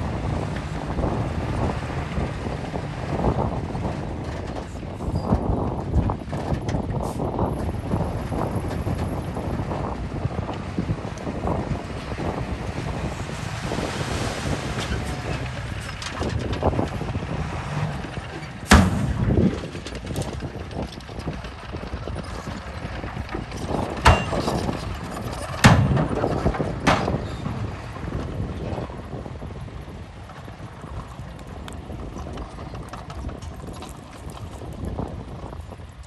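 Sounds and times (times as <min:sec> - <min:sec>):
heavy machinery rumbling: 0:00.0 - 0:35.5
sharp metal clanks: 0:18.7 - 0:19.8, 0:24.1 - 0:24.7.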